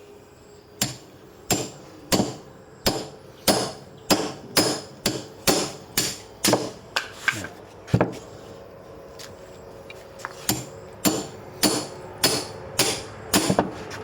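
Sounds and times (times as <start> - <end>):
hand tool striking wood: 0.8 - 8.2, 10.4 - 14.0.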